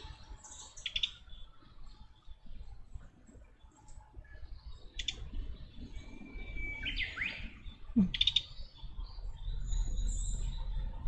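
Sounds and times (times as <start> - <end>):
songbirds chirping: 0.0 - 11.0
bird whistle and rising notes: 5.8 - 7.6.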